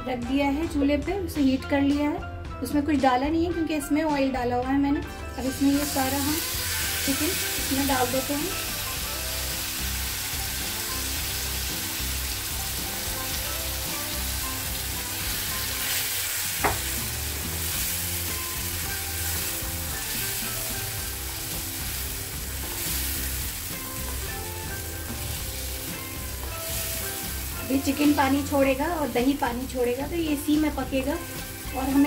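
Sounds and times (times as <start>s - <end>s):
chicken sizzling in a frying pan: 5.5s - 32.0s
sharp knock: 16.6s - 16.9s.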